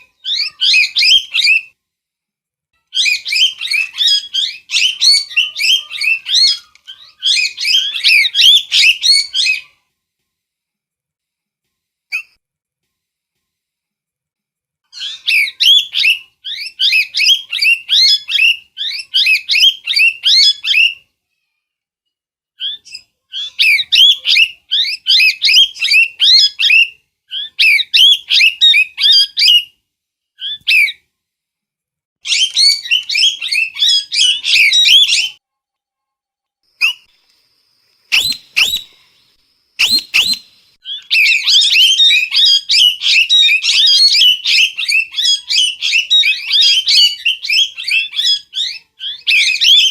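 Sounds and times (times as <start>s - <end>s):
parrot squawking: 0.0s - 1.7s, 2.9s - 9.8s, 14.9s - 21.0s, 22.6s - 29.7s, 30.4s - 31.0s, 32.2s - 35.4s, 38.1s - 38.9s, 39.8s - 49.9s.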